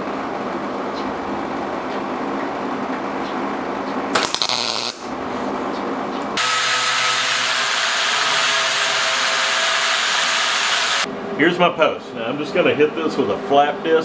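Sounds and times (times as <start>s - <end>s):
machine hum: 4.4s - 13.4s
power tool with high hiss: 6.4s - 11.1s.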